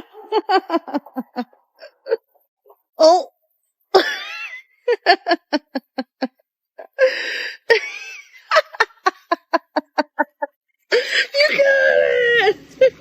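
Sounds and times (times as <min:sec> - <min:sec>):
person laughing: 0:00.0 - 0:02.3, 0:04.0 - 0:11.7.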